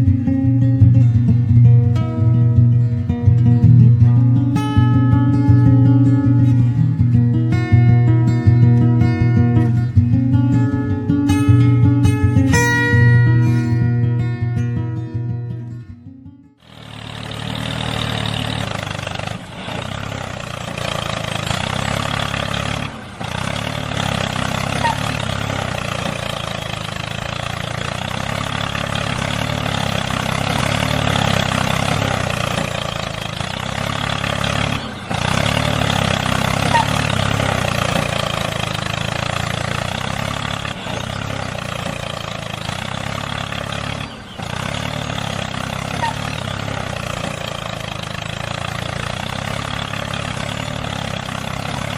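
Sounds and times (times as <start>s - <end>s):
small engine running: 16.6s - 51.9s.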